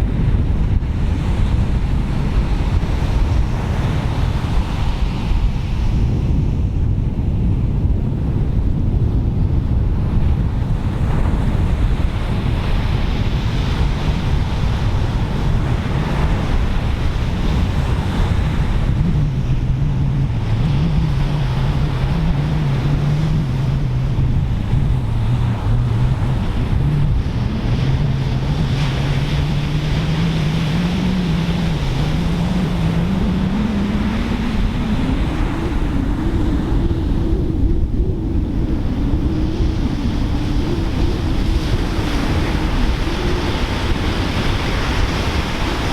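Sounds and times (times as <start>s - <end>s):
wind buffeting microphone: 0.0s - 45.9s
ocean surf breaking: 10.9s - 45.9s.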